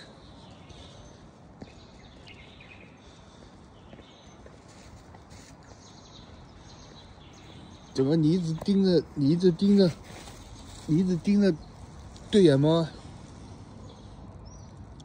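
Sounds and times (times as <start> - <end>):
low steady background noise: 0.0 - 15.0.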